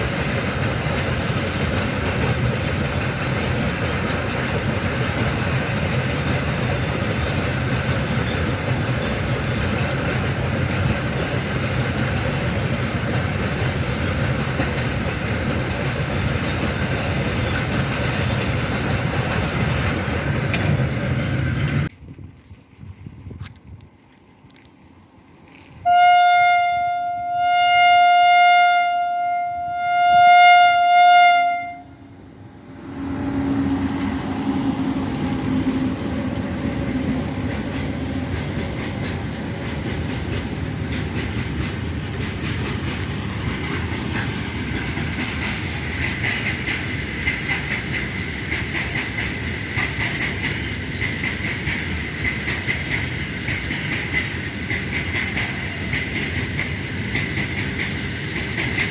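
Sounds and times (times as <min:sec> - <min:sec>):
train horn blast: 0:25.8 - 0:32.1
locomotive engine drone: 0:31.8 - 0:48.6.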